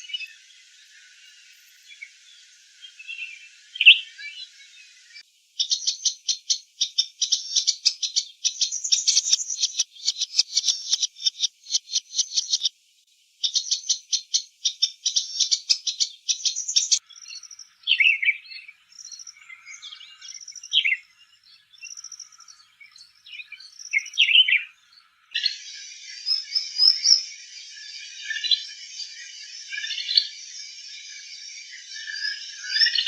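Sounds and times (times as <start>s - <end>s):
bird whistled song: 0.0s - 12.7s, 13.4s - 33.0s
steady hiss: 0.0s - 17.8s
faint chirps: 0.0s - 33.0s.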